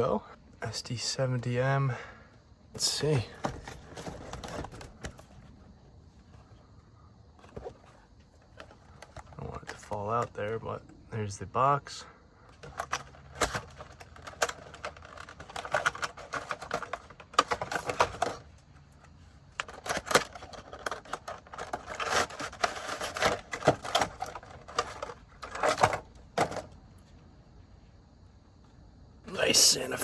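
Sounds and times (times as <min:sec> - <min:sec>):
hands unpacking boxes: 0:03.0 - 0:05.5, 0:12.5 - 0:18.5, 0:19.6 - 0:26.7.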